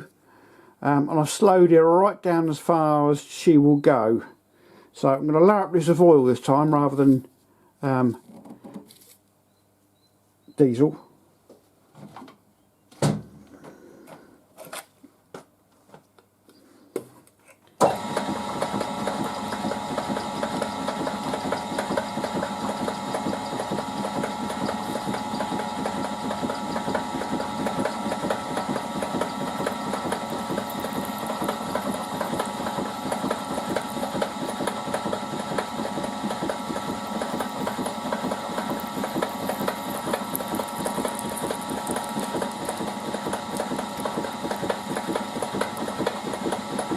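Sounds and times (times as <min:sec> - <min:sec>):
machine tool motor running: 0:17.8 - 0:46.9.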